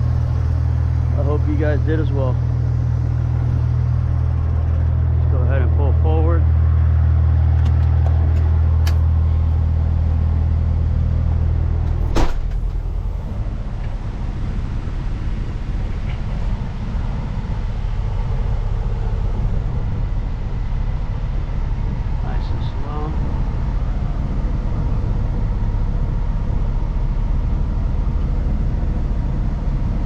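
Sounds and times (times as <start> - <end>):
truck diesel engine: 0.0 - 30.0
sharp pop: 12.0 - 12.8.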